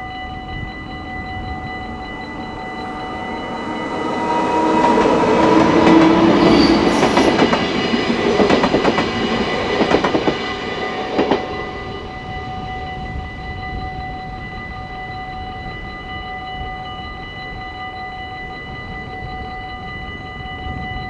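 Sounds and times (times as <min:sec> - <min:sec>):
crossing warning bell ringing: 0:00.0 - 0:21.0
train rushing past: 0:01.6 - 0:13.4.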